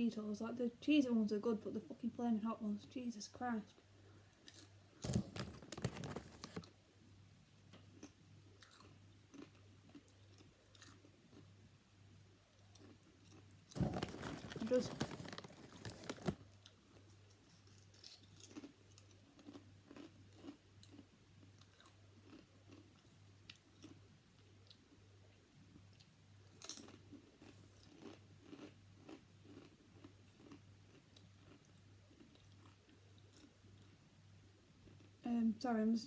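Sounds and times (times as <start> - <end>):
chewing crunchy snack: 4.4 - 6.7, 7.8 - 11.5, 12.5 - 25.0, 25.8 - 34.0, 34.8 - 35.2.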